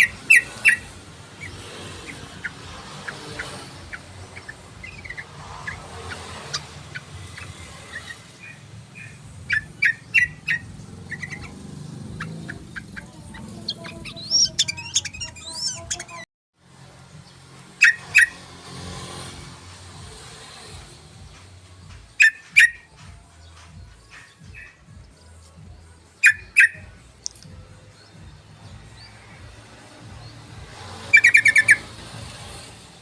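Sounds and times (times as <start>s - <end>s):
bird chirping and warbling: 0.0s - 16.3s, 17.7s - 20.7s, 26.1s - 33.0s.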